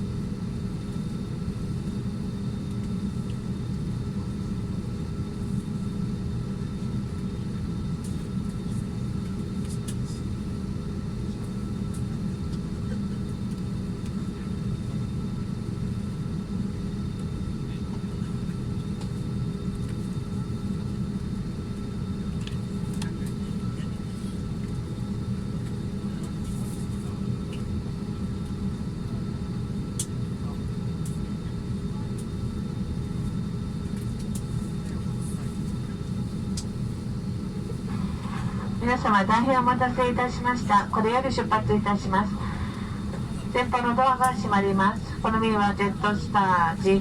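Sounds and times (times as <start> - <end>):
airliner cabin rumble: 0.0 - 47.0
ventilation hum: 0.0 - 47.0
faint steady tones: 37.3 - 47.0.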